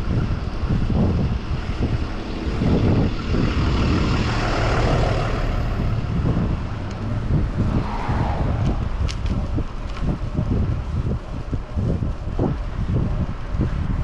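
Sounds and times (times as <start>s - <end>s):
motor vehicle passing: 0.0s - 11.2s
road traffic: 0.0s - 14.0s
wind buffeting microphone: 0.0s - 14.0s.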